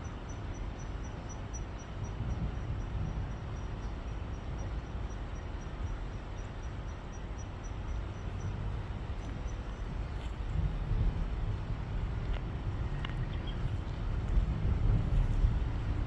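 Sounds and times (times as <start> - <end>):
steady low rumble: 7.9 - 16.0.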